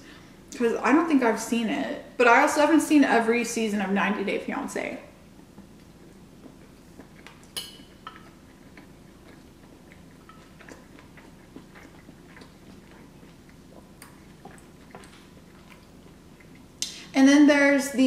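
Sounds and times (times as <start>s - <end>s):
chewing with wet mouth clicks: 5.4s - 17.0s.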